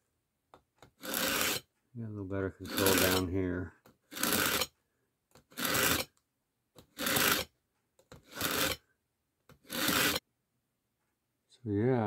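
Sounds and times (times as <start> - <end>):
knife rasping through sharpener: 0.9 - 1.7, 2.6 - 3.3, 4.1 - 4.7, 5.5 - 6.1, 6.8 - 7.5, 8.1 - 8.8, 9.5 - 10.2.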